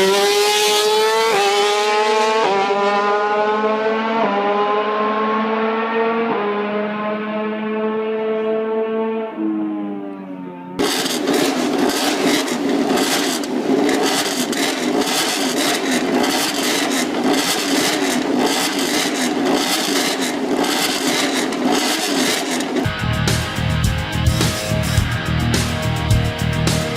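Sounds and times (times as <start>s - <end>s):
racing motorcycle engine: 0.0s - 26.9s.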